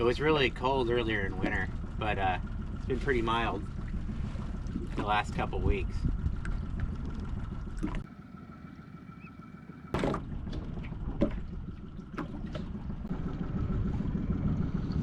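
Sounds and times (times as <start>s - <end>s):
low boat rumble: 0.0s - 15.0s
water sounds: 0.0s - 15.0s
sharp knocks on boat: 9.9s - 12.9s.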